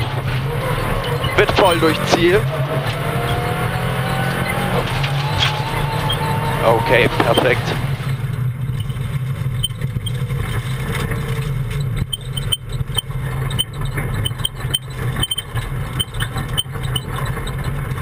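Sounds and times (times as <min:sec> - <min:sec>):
car engine running at low revs: 0:00.0 - 0:18.0
light clinks and rattles: 0:08.2 - 0:18.0.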